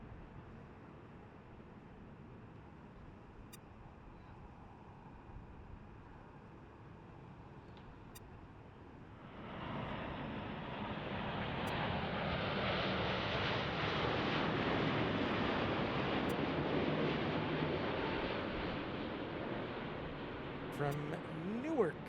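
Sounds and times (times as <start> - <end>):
jet engines roaring: 9.4 - 22.0.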